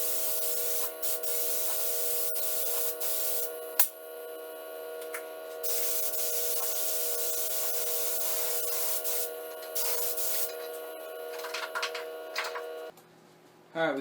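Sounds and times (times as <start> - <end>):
spray gun hissing: 0.0 - 3.9, 5.6 - 10.9
steady hum: 0.0 - 12.9.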